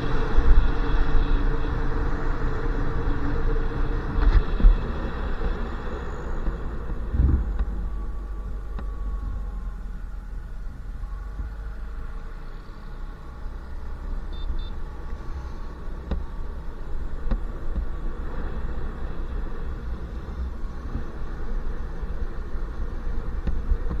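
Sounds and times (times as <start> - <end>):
wind buffeting microphone: 0.0 - 9.6
motorcycle engine and road rumble: 0.0 - 24.0
short high beeps: 14.3 - 14.8.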